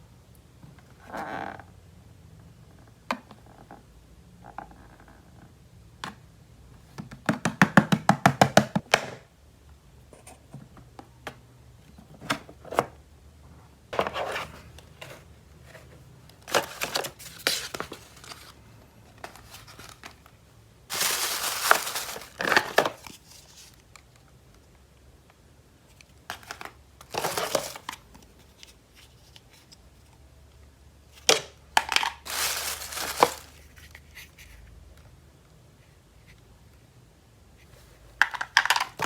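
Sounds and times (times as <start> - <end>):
plastic packaging crinkling and tearing: 16.5 - 18.6, 20.9 - 23.8, 27.1 - 28.0, 31.9 - 34.0.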